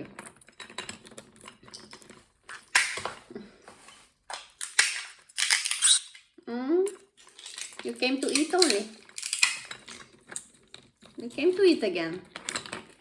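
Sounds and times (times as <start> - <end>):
walnut shells cracking: 0.2 - 3.2, 4.3 - 6.3, 6.9 - 11.2.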